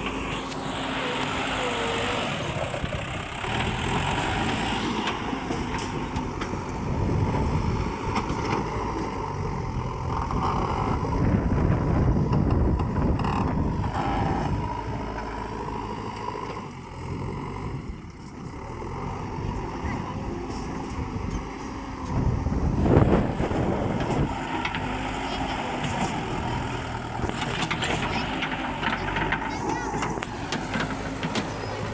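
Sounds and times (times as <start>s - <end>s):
heavy vehicle engine running: 0.0s - 31.9s
wind noise on microphone: 6.6s - 8.5s, 10.2s - 15.0s, 22.0s - 24.7s.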